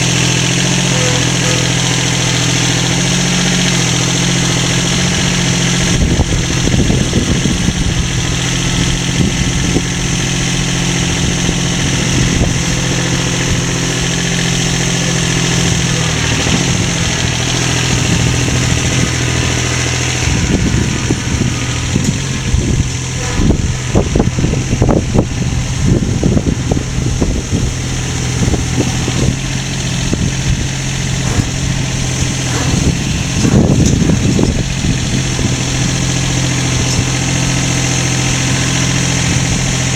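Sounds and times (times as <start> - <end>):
engine running steadily: 0.0 - 39.9
clattering knocks: 28.4 - 37.1.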